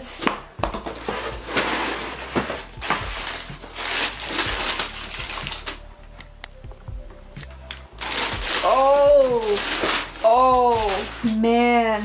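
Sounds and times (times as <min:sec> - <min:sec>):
paper and cardboard crinkling: 0:00.6 - 0:06.0, 0:07.4 - 0:12.0.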